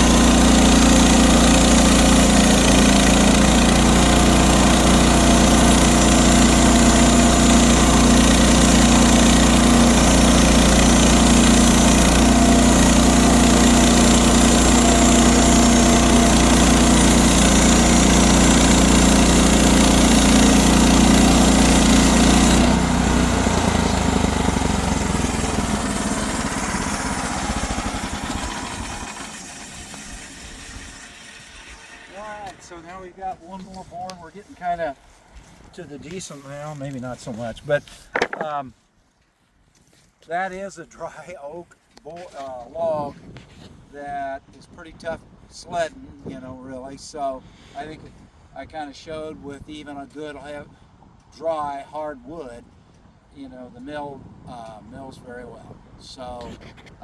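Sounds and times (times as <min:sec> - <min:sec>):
sawmill engine running: 0:00.0 - 0:38.6.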